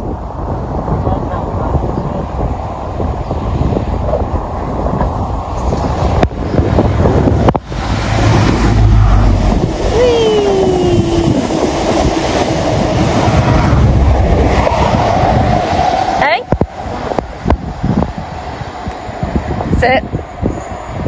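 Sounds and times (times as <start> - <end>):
train engine and wheel noise: 0.0 - 21.0
whine dropping in pitch: 7.3 - 15.8.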